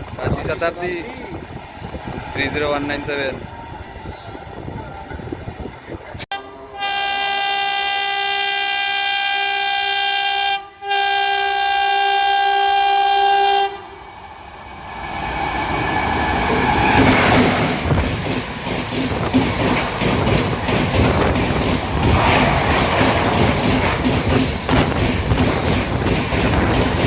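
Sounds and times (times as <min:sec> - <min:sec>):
train passing at speed: 0:00.0 - 0:08.1, 0:11.7 - 0:27.0
train horn blasts: 0:06.3 - 0:14.0
wheels clickety-clack on rails: 0:15.5 - 0:27.0.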